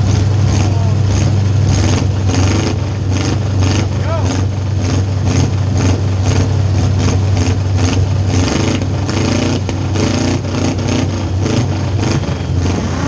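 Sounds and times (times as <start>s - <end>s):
car engine droning and revving: 0.0s - 13.0s.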